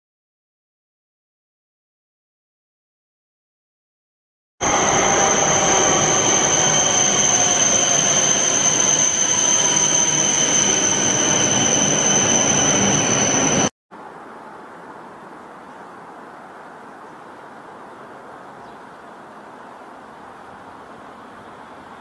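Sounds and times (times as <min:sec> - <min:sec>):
high-pitched whine: 0:04.6 - 0:13.7
high-speed train rushing rumble: 0:04.6 - 0:13.7
quiet steady hiss: 0:14.0 - 0:22.0.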